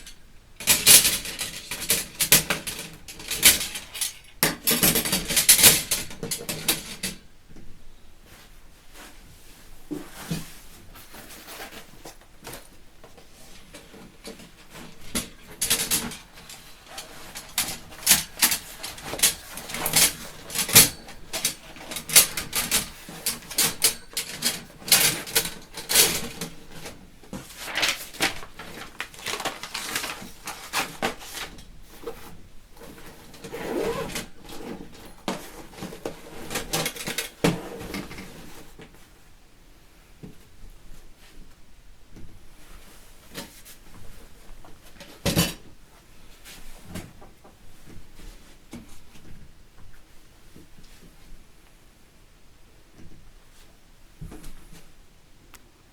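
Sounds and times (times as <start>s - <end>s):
metal parts clinking: 15.1s - 26.5s.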